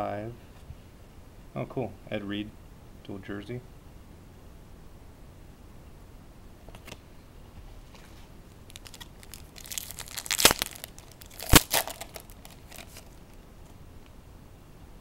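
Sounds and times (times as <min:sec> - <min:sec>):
foil wrapper crinkling and tearing: 0:08.6 - 0:13.3
sharp loud foil crackles: 0:08.6 - 0:13.3.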